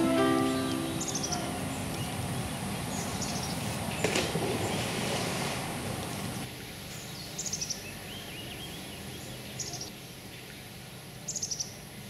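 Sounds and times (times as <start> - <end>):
bird high note series: 0.0 - 2.2
lower arched bird calls: 0.0 - 3.7
steady low background noise: 0.0 - 12.0.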